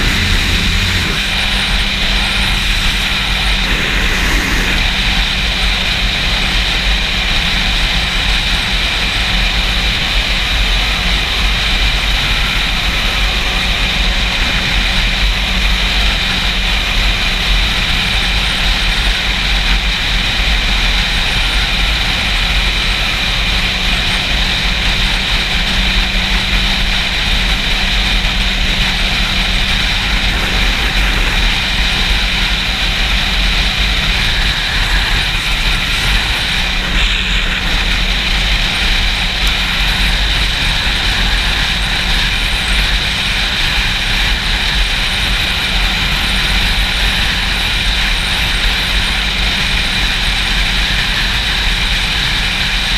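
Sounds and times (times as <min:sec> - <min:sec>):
wind buffeting microphone: 0:00.0 - 0:06.2, 0:26.6 - 0:46.0
motorcycle engine running: 0:00.0 - 0:52.9.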